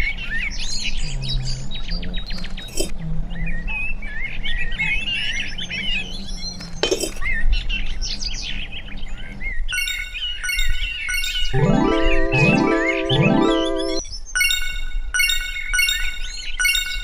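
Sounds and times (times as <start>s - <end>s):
birds chirping: 0.0s - 14.0s
tinkling music jingle: 9.8s - 17.0s.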